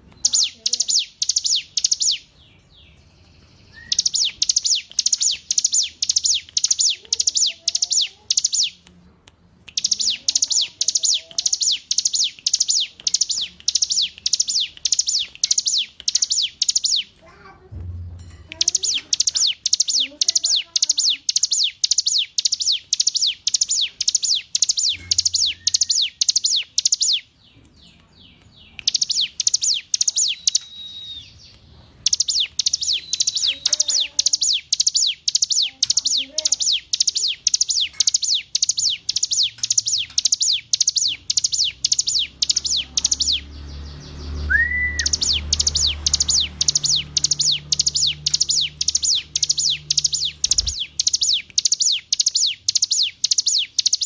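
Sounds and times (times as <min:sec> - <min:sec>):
bird singing high sharp notes: 0:00.0 - 0:08.8, 0:09.7 - 0:17.2, 0:18.2 - 0:27.3, 0:28.2 - 0:54.0
lower whistled bird note: 0:44.5 - 0:45.3.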